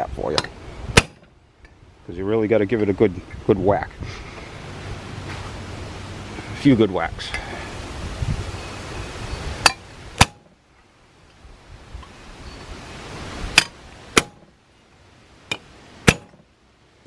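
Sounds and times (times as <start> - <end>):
hammer striking metal: 13.6 - 14.5, 15.5 - 16.4.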